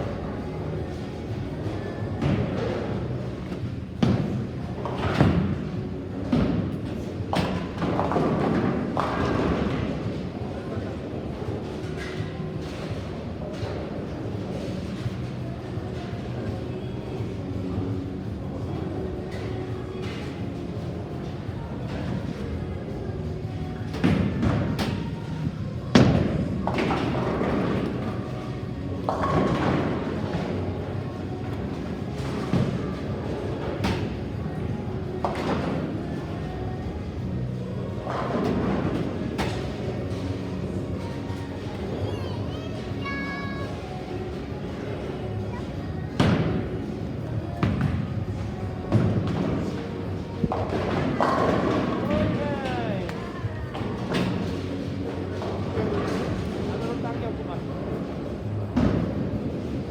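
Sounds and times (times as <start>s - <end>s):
bowling alley din: 20.7s - 56.8s.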